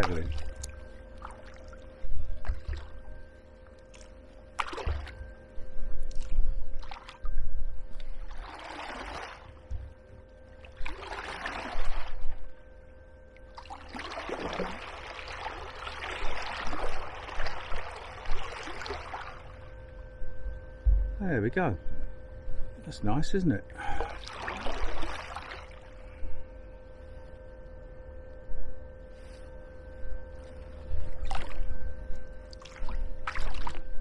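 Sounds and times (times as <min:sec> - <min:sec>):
paddle strokes splashing water: 0:08.0 - 0:09.6, 0:10.7 - 0:12.2, 0:13.6 - 0:19.5, 0:24.1 - 0:25.9.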